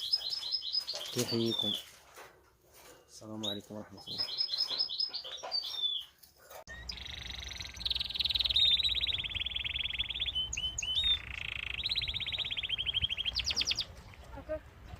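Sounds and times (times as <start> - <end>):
finches singing rattling trills: 0.0 - 1.8, 3.4 - 6.0, 6.7 - 13.9
bird chirps: 0.0 - 2.0, 3.3 - 14.9.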